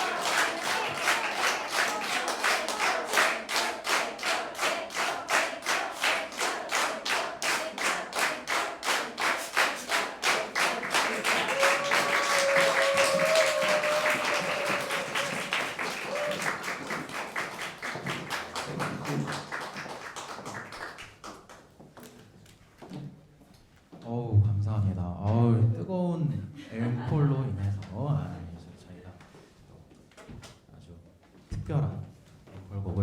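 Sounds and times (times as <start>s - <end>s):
audience clapping in rhythm: 0.0s - 21.8s.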